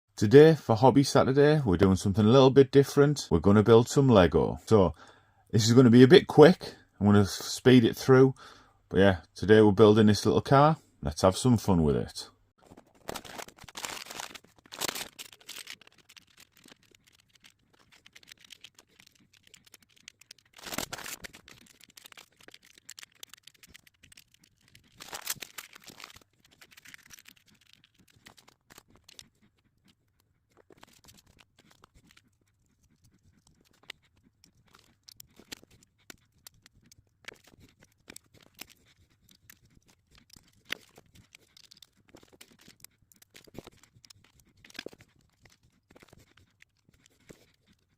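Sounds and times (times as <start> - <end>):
plastic bag crinkling: 12.6 - 29.3, 30.5 - 32.2, 37.3 - 47.9
plastic pieces clicking and rattling: 12.7 - 29.3, 32.9 - 47.8.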